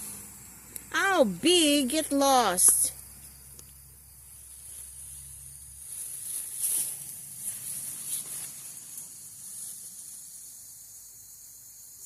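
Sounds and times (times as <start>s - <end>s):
steady high-pitched hiss: 0.0s - 12.0s
plants rustling: 4.2s - 10.3s.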